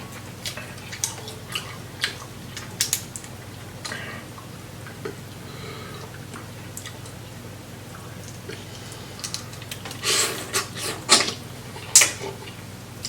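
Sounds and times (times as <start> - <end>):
low steady hum: 0.0 - 13.0
seafood shells cracking: 0.4 - 3.4.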